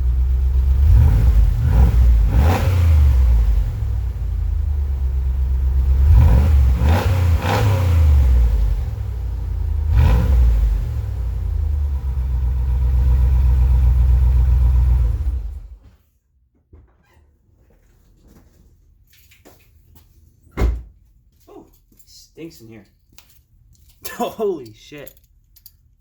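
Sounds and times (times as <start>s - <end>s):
engine revving: 0.0s - 15.8s
engine rumbling idle: 0.0s - 15.8s.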